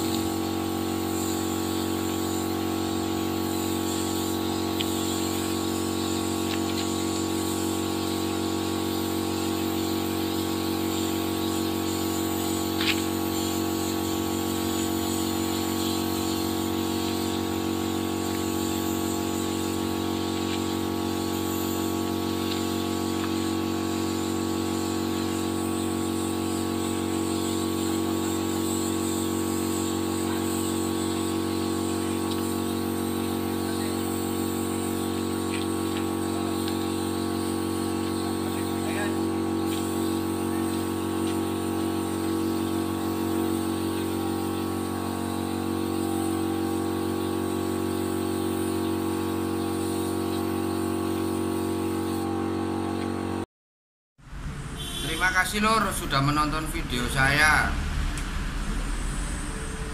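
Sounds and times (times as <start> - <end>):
motor humming: 0.0 - 53.4.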